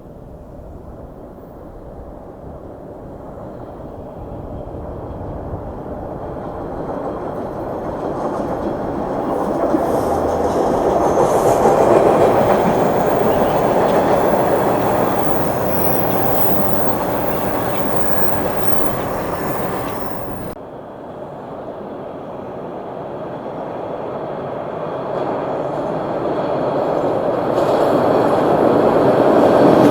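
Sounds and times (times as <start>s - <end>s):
train passing on rails: 2.4s - 20.6s, 26.7s - 29.9s.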